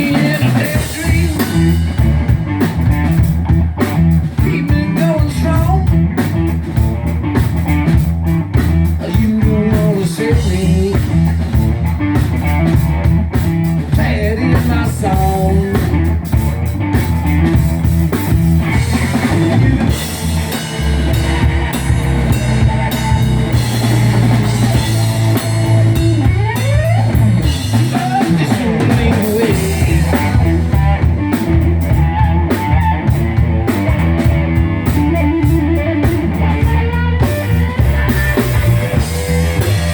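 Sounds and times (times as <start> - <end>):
blues-rock band playing: 0.0 - 39.9
rising guitar bends: 10.0 - 39.9.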